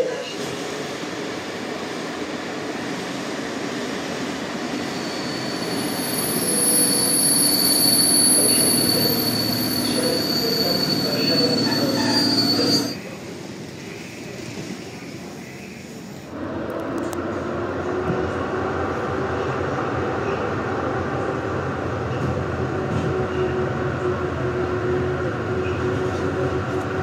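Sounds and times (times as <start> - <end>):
high-pitched brake squeal: 4.8 - 13.0
train running gear rumbling: 16.4 - 27.0.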